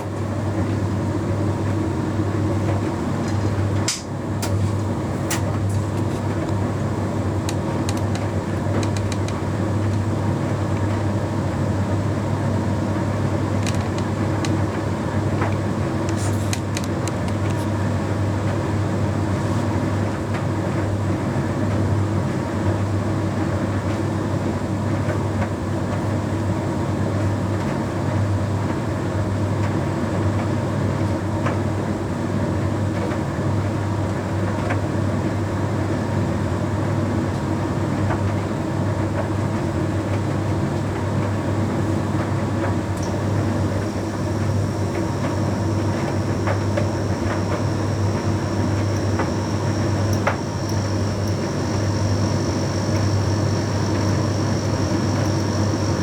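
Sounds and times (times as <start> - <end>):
tumble dryer humming: 0.0 - 21.1, 41.0 - 56.0.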